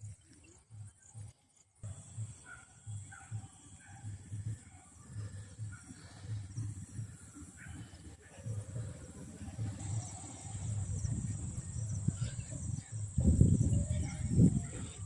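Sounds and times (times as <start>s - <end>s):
soft low thumps: 0.0s - 15.0s
insects chirring: 9.6s - 15.0s.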